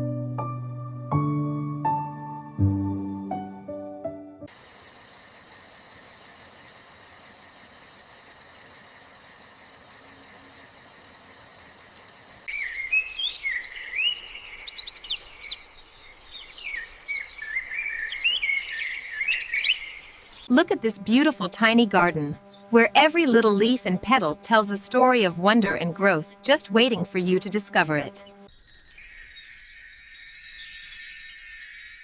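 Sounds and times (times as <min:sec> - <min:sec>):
high insect trill: 0:04.5 - 0:12.5, 0:28.2 - 0:32.0
birds chirping and calling: 0:12.5 - 0:20.5.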